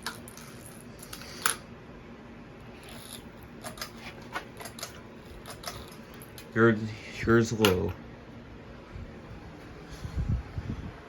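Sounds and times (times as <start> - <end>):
faint steady hum: 0.0 - 11.0
fan pull chains clicking: 3.1 - 6.6.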